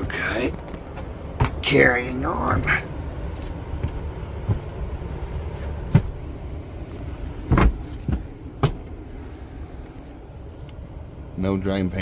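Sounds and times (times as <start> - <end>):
low rumble: 0.0 - 11.4
short knocks and thumps: 5.8 - 6.2, 7.4 - 8.9.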